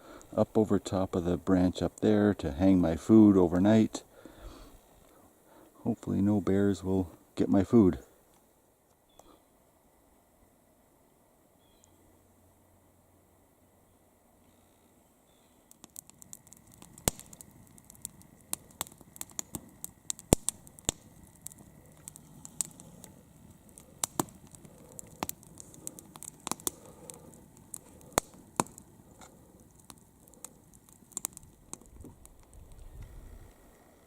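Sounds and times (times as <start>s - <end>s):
campfire crackling and popping: 0.0s - 8.4s, 15.5s - 34.0s
soft low hiss: 0.0s - 34.0s.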